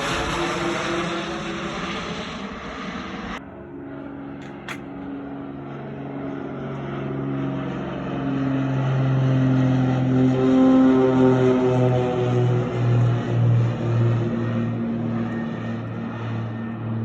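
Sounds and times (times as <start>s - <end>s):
engine drone: 0.0s - 17.0s
brief clicks: 4.4s - 4.9s.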